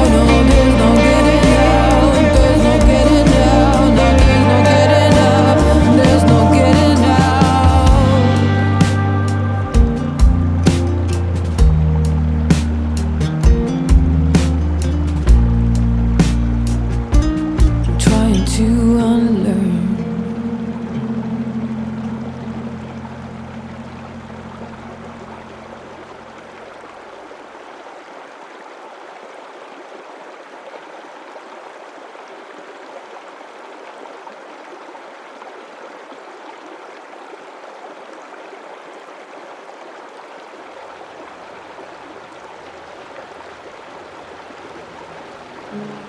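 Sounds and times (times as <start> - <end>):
creek water rushing over rock: 0.0 - 46.0
low held tone: 17.8 - 25.8.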